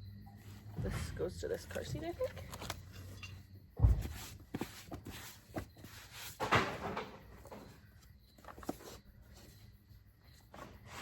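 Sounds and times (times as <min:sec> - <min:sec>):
heavy thump: 0:03.8 - 0:04.3
rustling scrape: 0:04.0 - 0:07.0.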